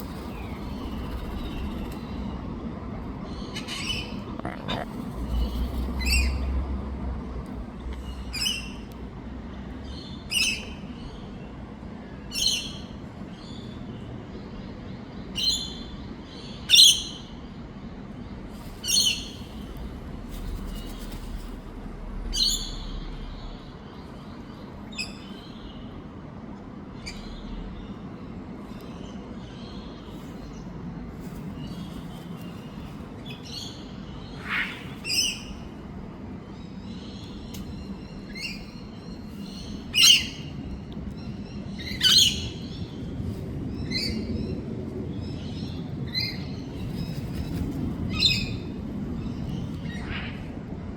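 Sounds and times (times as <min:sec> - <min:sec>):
parrots chirping: 0:03.3 - 0:05.0.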